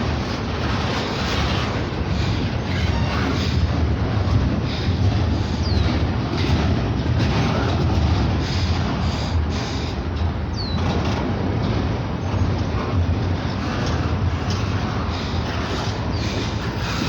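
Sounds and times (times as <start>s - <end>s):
freight train rumbling past: 0.0s - 17.0s
high wheel squeals: 1.0s - 6.1s, 13.7s - 17.0s.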